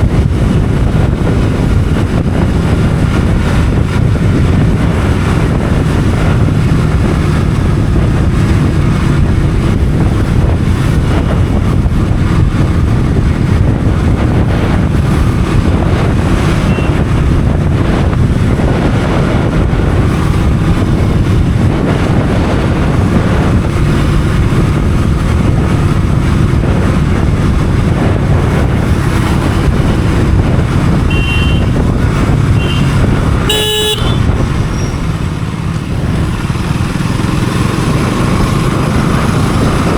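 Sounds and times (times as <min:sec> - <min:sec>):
motorcycle engine: 0:00.0 - 0:39.9
wind rush: 0:00.0 - 0:39.9
vehicle horn honk: 0:16.6 - 0:17.0, 0:31.0 - 0:31.8, 0:32.5 - 0:34.9.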